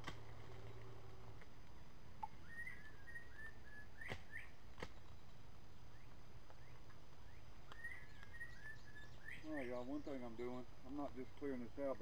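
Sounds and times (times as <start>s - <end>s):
outdoor hiss: 0.0s - 12.0s
songbird singing: 0.0s - 12.0s
sharp snaps: 4.0s - 5.0s.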